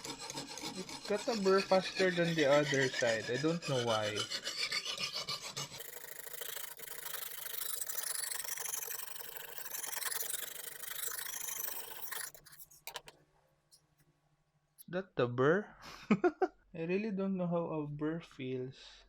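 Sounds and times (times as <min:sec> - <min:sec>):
sharpening hone scraping knife: 0:00.0 - 0:13.1.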